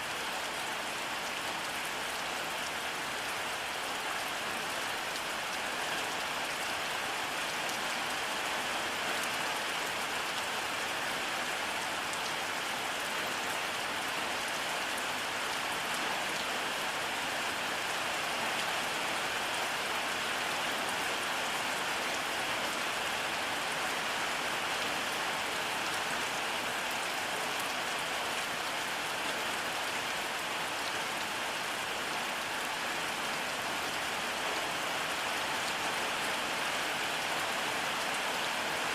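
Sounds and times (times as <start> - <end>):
steady rainfall: 0.0 - 38.9.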